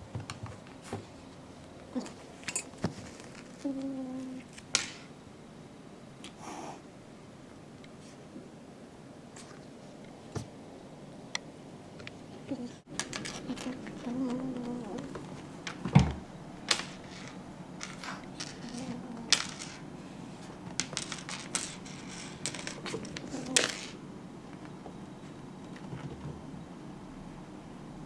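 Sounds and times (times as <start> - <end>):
kitten growling low: 3.6 - 4.5, 12.3 - 12.8, 13.4 - 15.3, 18.6 - 19.5, 23.2 - 23.8.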